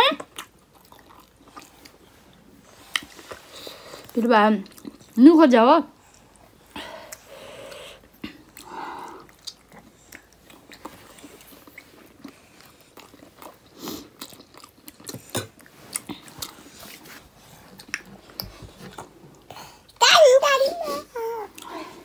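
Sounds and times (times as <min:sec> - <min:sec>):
wet chewing and mouth smacks: 0:00.2 - 0:05.2, 0:06.0 - 0:20.0.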